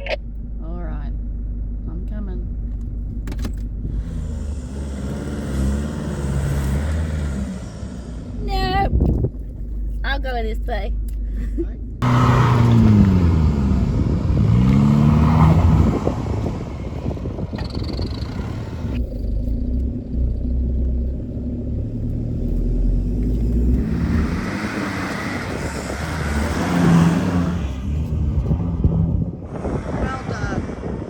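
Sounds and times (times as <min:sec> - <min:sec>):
engine revving hard: 0:03.9 - 0:08.5, 0:12.0 - 0:19.0, 0:23.5 - 0:31.0.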